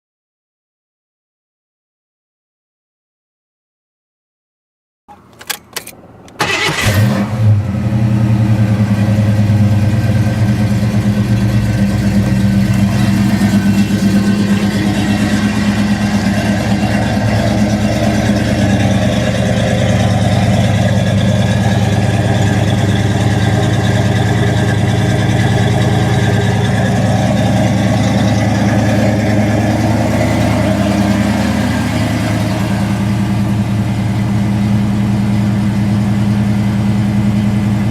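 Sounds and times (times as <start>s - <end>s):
engine cranking: 5.1s - 7.6s, 10.0s - 33.8s
car engine idling: 5.1s - 37.9s.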